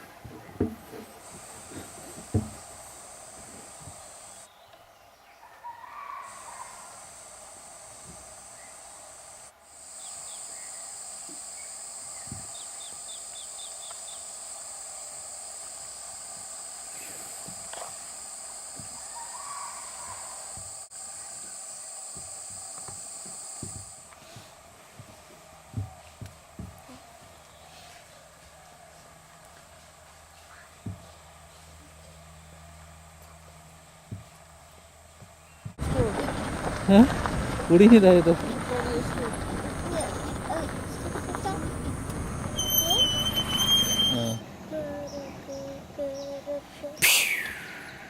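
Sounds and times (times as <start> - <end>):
insects droning: 0.0 - 27.7, 28.5 - 48.0
bird chirping: 10.0 - 14.3, 42.4 - 44.4.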